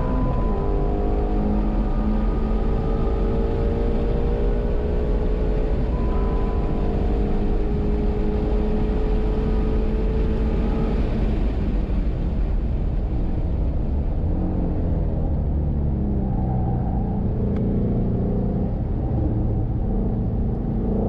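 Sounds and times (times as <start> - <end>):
car engine revving from inside cabin: 0.0 - 11.4.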